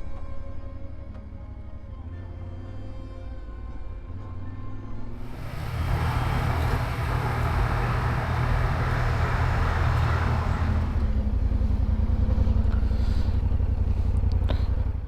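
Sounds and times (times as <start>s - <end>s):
motorcycle engine idling: 5.2s - 15.0s
wind and road rush: 5.2s - 15.0s.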